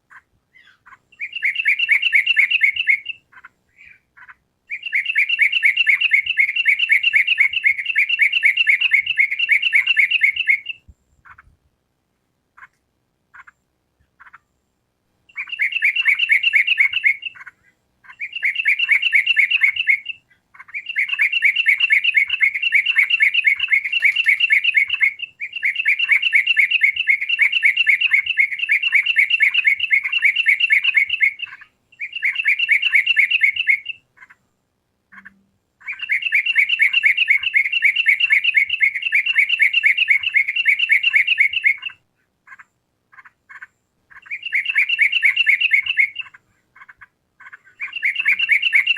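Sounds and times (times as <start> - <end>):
bulbul singing chattering notes: 15.3 - 33.9, 47.5 - 48.9.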